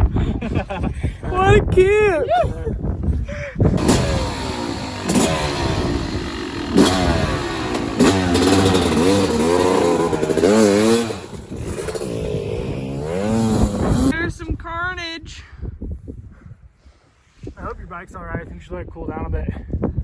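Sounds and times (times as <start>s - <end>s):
dirt bike engine revving: 3.8s - 14.2s.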